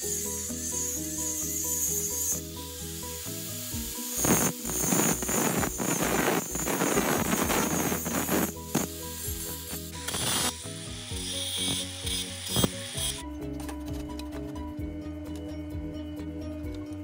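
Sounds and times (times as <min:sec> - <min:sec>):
angle grinder cutting steel: 0:00.0 - 0:13.2
background music: 0:00.0 - 0:17.0.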